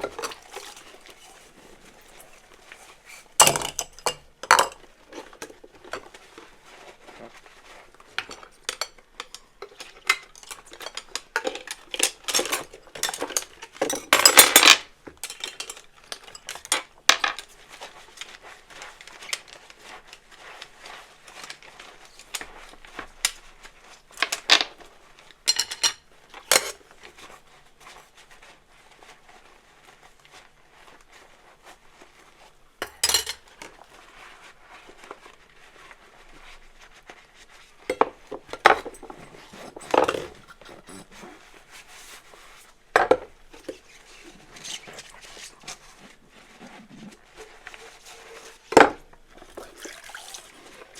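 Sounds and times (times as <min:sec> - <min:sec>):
dishes and cutlery clinking: 0:03.2 - 0:06.1, 0:08.2 - 0:17.5, 0:25.4 - 0:26.8, 0:32.8 - 0:33.8, 0:37.9 - 0:41.4
dishes clattering: 0:03.4 - 0:04.8, 0:32.8 - 0:33.4.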